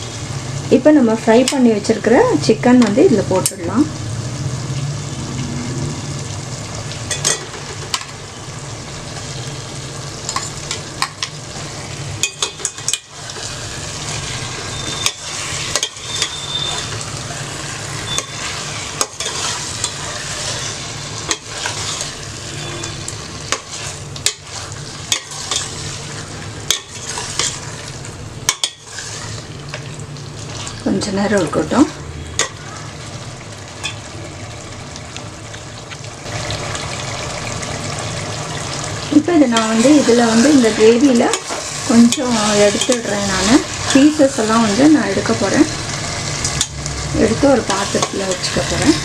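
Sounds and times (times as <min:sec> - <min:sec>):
food sizzling in a pan: 0:00.0 - 0:49.0
spoon scraping and knocking pan: 0:14.9 - 0:16.9, 0:23.5 - 0:26.0, 0:28.5 - 0:29.3.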